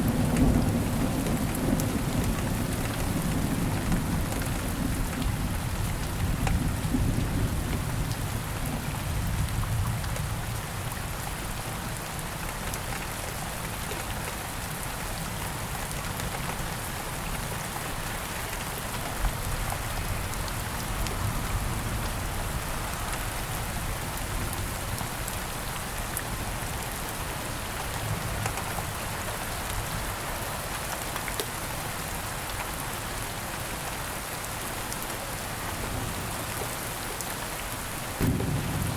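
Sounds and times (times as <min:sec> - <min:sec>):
rain falling on leaves: 0:00.0 - 0:38.9
distant thunder rumble: 0:38.2 - 0:38.9.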